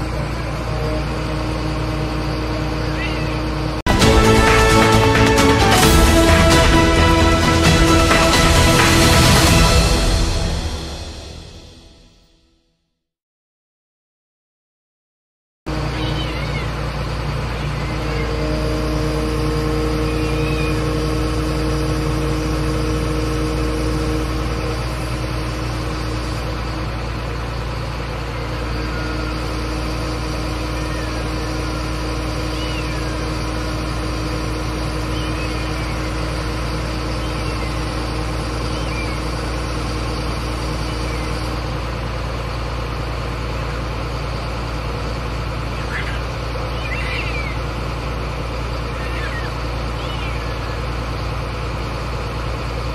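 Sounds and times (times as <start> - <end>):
large vehicle engine idling: 0.0 - 12.2, 15.7 - 52.9
faint short high cries: 2.8 - 3.6, 15.8 - 16.9, 30.5 - 33.4.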